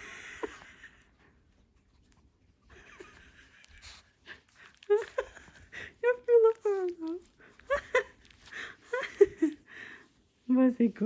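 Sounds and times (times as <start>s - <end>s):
dog sniffing and snuffling: 0.0s - 11.0s
person speaking: 5.9s - 7.9s.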